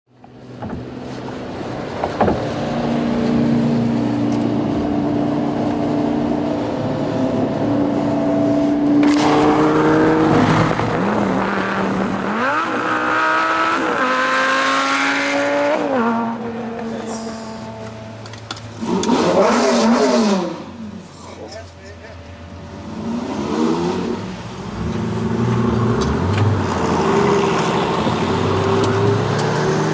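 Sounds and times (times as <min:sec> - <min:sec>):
sports car engine revving: 0:02.5 - 0:21.0.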